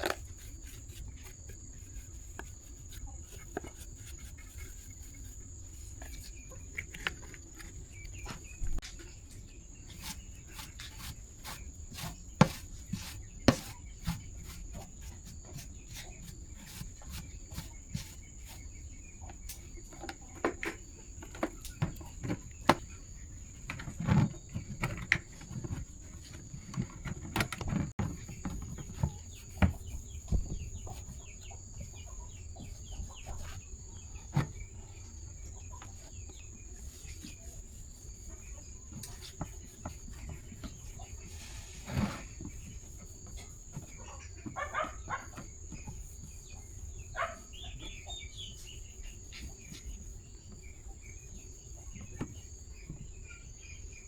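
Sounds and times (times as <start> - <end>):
chicken clucks: 43.4 - 45.9.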